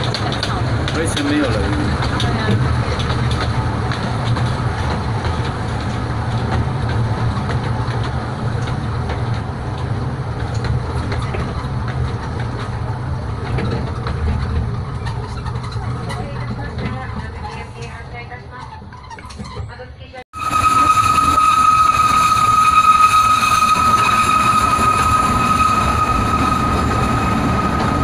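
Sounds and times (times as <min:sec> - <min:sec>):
wheels clicking and rattling: 0:00.0 - 0:19.9
train rumbling on track: 0:00.0 - 0:28.0.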